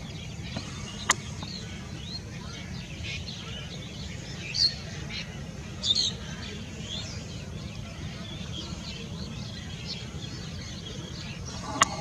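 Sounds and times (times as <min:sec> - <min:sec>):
birds chirping: 0:00.0 - 0:03.5, 0:08.5 - 0:12.0.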